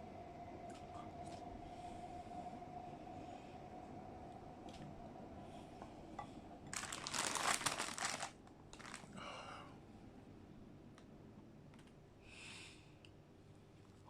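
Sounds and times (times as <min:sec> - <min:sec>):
food packaging crinkling: 0:06.7 - 0:09.2.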